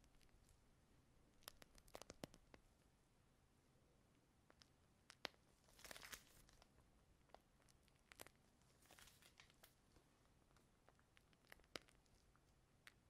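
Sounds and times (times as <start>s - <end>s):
plastic bag crinkling: 5.7s - 6.6s, 8.8s - 9.8s.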